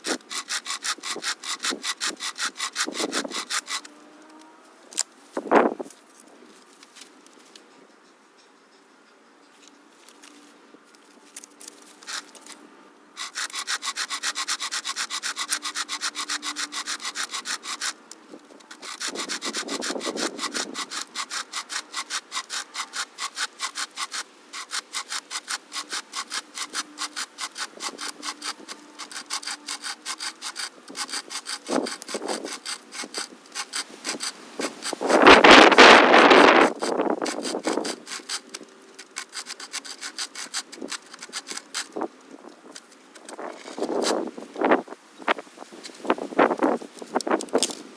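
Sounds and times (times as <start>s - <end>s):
hand chainsaw rasping through log: 0.0s - 4.4s, 13.2s - 44.2s.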